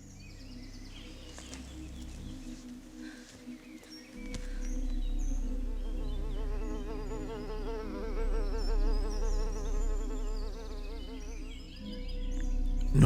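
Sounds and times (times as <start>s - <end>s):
small birds chirping: 0.0s - 7.8s.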